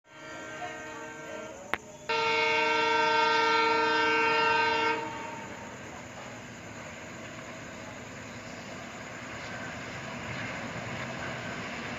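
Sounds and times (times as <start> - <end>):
locomotive horn blast: 0.1 - 5.7
running train noise: 0.1 - 11.9.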